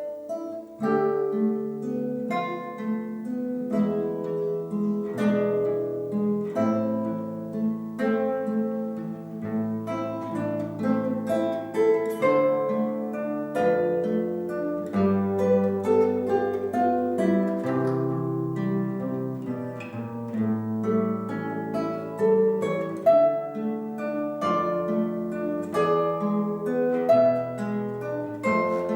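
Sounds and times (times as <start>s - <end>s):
plucked string duet: 0.0s - 28.9s.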